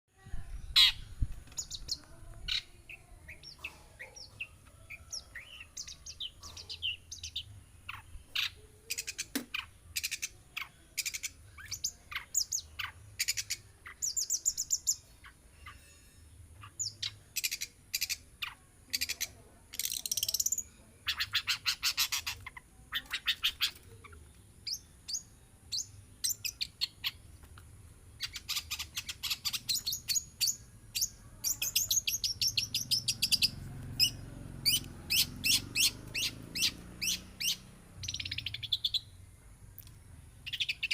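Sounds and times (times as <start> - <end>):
shrike singing sharp chirps: 28.2 - 39.2.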